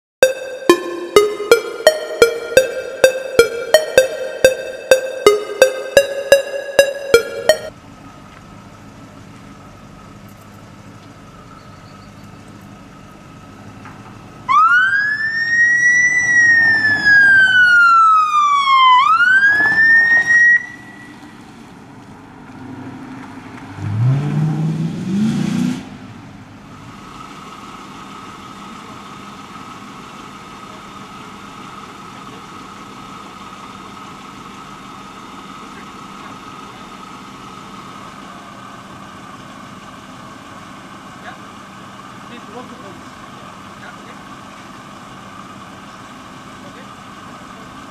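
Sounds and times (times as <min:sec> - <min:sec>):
police siren wailing: 0:00.2 - 0:07.7, 0:14.5 - 0:21.2
car engine revving and idling: 0:21.0 - 0:47.9.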